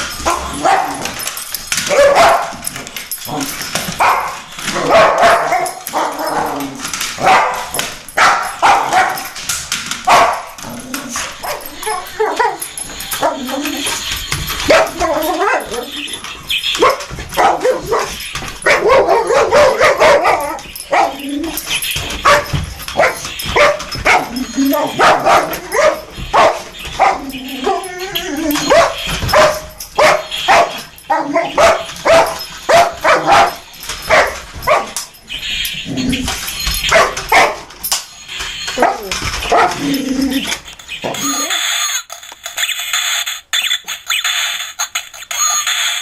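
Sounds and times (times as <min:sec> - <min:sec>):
dog barking: 0:00.3 - 0:01.0, 0:01.9 - 0:02.6, 0:04.0 - 0:06.4, 0:07.2 - 0:09.3, 0:10.1 - 0:10.5, 0:14.7 - 0:15.8, 0:16.8 - 0:21.2, 0:22.2 - 0:27.8, 0:28.6 - 0:35.0, 0:36.9 - 0:37.6, 0:38.8 - 0:39.8
dog yipping and whining: 0:10.1 - 0:35.0, 0:38.6 - 0:42.0.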